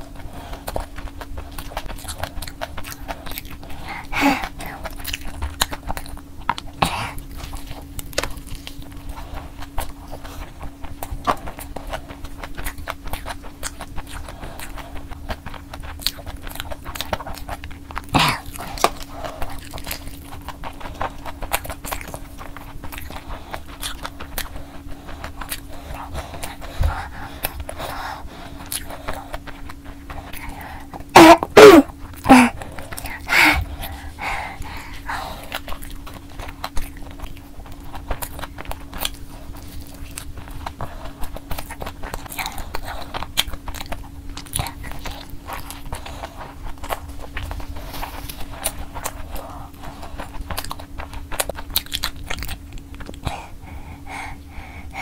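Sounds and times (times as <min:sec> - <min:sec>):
chewing and mouth sounds: 0:00.0 - 0:55.0
person coughing: 0:31.1 - 0:32.6.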